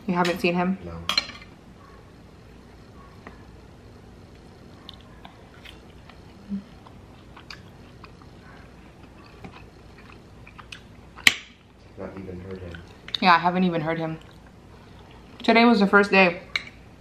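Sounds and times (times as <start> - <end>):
chewing steak: 4.7 - 13.2, 14.2 - 15.4.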